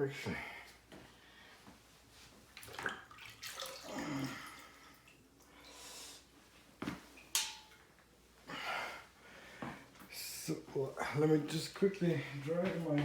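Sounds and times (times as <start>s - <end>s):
tap water running and splashing: 2.6s - 5.8s.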